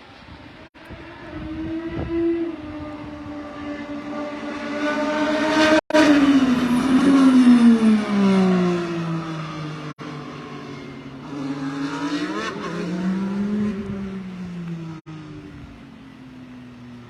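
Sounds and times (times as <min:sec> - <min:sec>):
race car passing at speed: 0:00.2 - 0:17.0.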